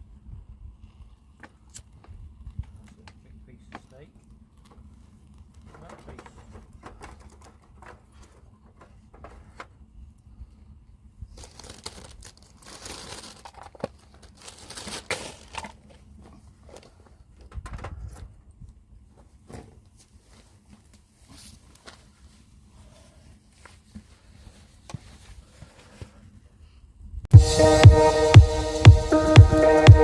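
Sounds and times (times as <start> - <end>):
crinkling and rustling: 1.4 - 9.8, 11.3 - 18.3, 19.1 - 26.2.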